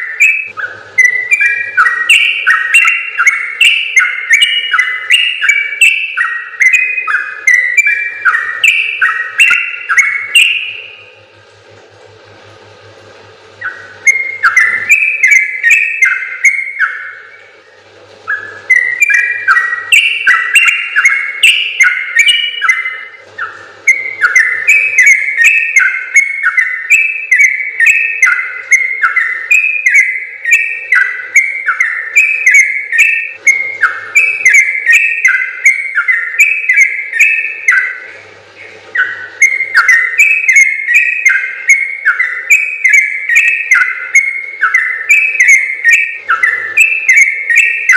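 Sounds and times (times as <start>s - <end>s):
bird singing chattering phrases: 18.3s - 38.0s.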